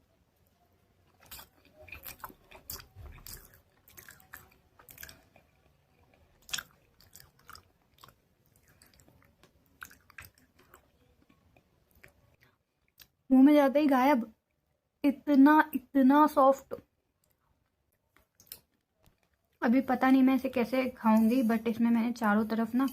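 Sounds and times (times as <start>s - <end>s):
chewing crunchy paste: 1.0s - 13.2s.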